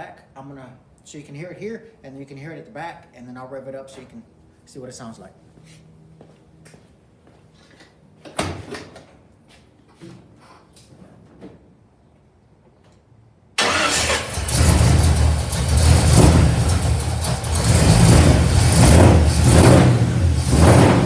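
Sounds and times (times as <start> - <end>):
car engine starting and running: 13.6 - 21.0.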